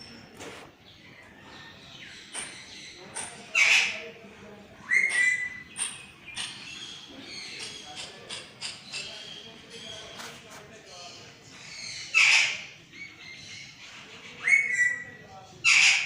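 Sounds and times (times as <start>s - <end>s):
parrot squawking: 12.0s - 12.7s, 15.6s - 16.0s.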